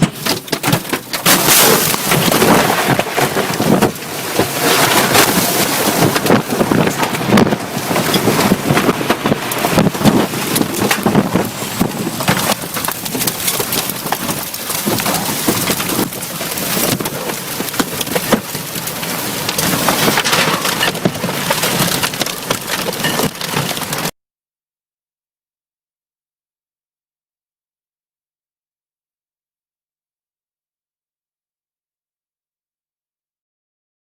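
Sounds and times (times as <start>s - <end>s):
sharp crackles: 0.0s - 24.2s
wind on the microphone: 1.6s - 20.3s.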